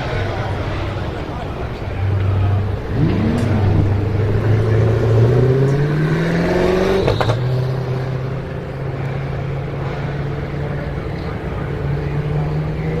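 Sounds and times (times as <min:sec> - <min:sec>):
car engine revving under load: 0:00.0 - 0:13.0
gear shift crack: 0:02.2 - 0:06.2.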